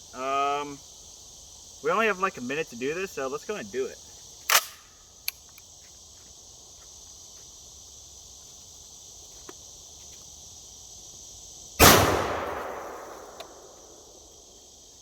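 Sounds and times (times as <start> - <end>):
crickets chirping: 0.0 - 15.0
small click: 4.5 - 5.7.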